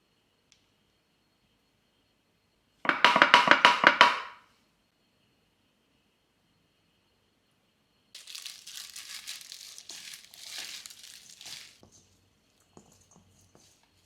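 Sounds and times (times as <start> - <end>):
packaging crinkling: 8.2 - 12.0.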